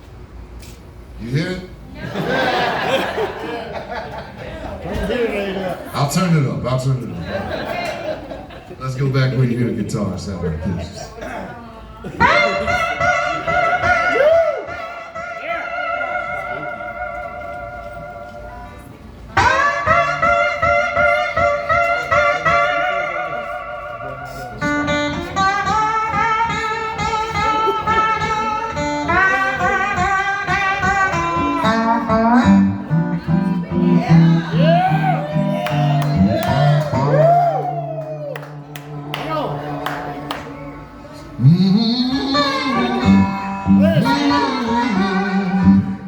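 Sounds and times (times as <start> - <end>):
lower accompanying guitar line: 12.0 - 46.0
electric blues guitar: 12.1 - 46.0.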